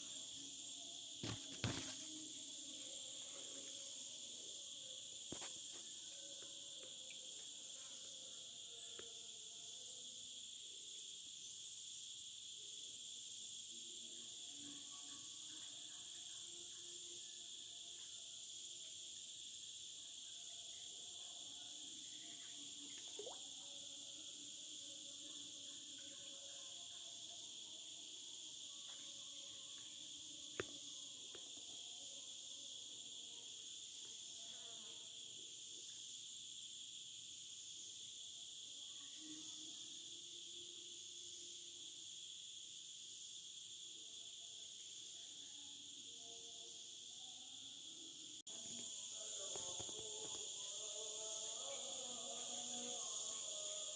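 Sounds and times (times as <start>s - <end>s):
crickets and insects chirping: 0.0s - 53.9s
faint lower insect calls: 0.0s - 53.9s.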